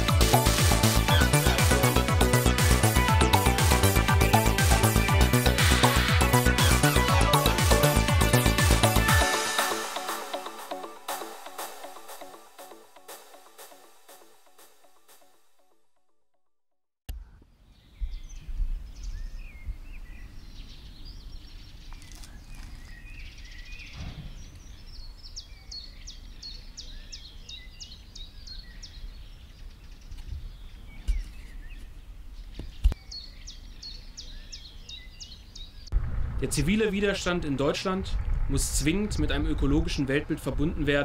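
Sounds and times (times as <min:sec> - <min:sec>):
songbirds chirping: 0:00.0 - 0:09.7, 0:17.1 - 0:41.0
low rumble: 0:35.9 - 0:41.0.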